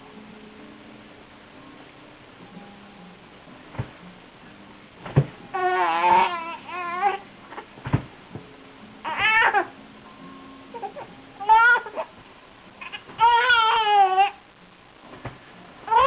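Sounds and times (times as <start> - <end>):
baby crying: 5.5 - 7.2, 9.0 - 9.7, 10.7 - 12.1, 12.8 - 14.4.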